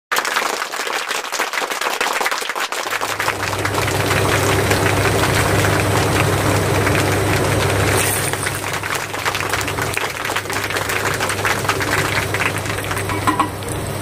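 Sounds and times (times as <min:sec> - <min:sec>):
heavy rain pouring: 0:03.1 - 0:14.0.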